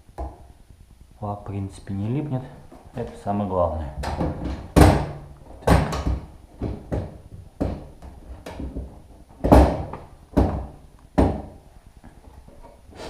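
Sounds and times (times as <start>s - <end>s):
wooden parts knocking and clunking: 4.0s - 12.8s.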